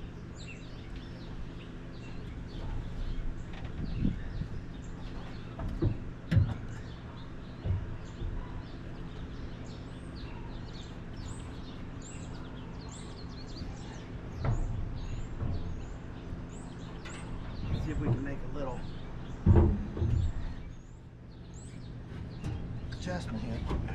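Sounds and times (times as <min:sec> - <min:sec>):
small birds chirping: 0:00.0 - 0:23.9
steady low hum: 0:00.0 - 0:23.9
sharp knocks and thumps: 0:05.3 - 0:08.7, 0:14.3 - 0:20.8, 0:22.1 - 0:23.9.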